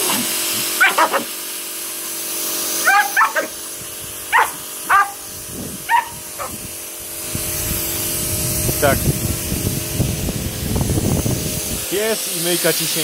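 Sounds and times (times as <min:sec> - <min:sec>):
pressure washer spray and hum: 0:00.0 - 0:13.0
dog barking: 0:00.8 - 0:01.3, 0:02.8 - 0:03.5, 0:04.3 - 0:05.2, 0:05.9 - 0:06.6.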